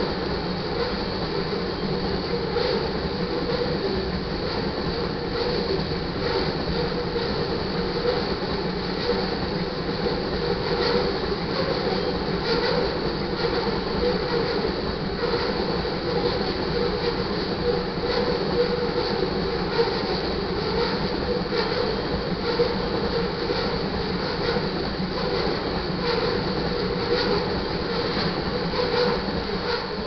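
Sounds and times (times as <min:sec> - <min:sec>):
train wheels rumbling on rails: 0:00.0 - 0:30.0
high wheel squeal: 0:20.8 - 0:30.0.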